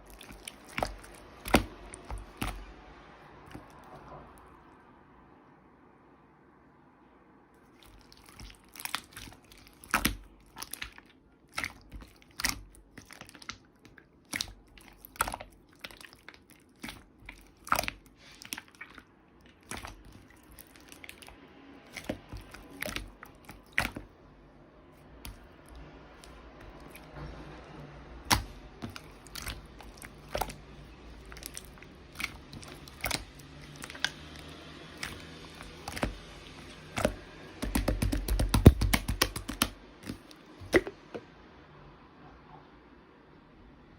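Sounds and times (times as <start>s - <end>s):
slime squeezed clicking and popping: 28.2s - 40.9s.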